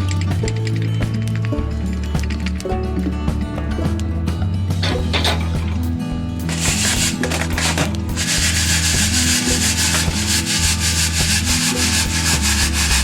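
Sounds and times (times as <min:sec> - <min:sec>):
background music: 0:00.0 - 0:13.0
coffee beans rattling in roaster: 0:06.5 - 0:13.0.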